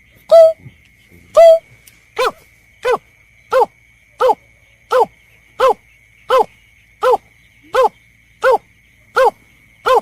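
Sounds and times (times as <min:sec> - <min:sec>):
bird hooting call: 0:00.3 - 0:00.8, 0:01.4 - 0:01.6.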